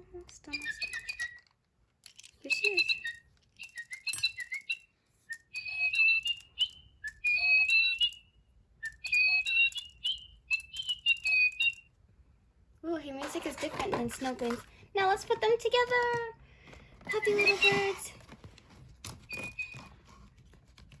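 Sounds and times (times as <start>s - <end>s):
toy bird electronic chirps: 0.4s - 1.5s, 2.4s - 11.9s, 17.1s - 18.0s.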